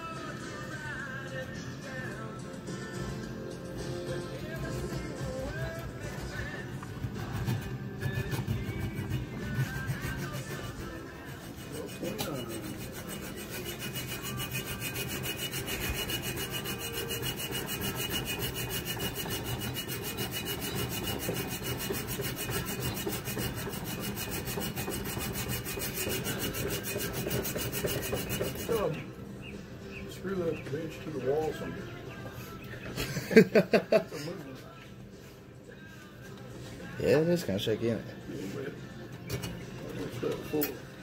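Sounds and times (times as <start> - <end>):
wood rasping and rubbing: 4.4 - 29.1.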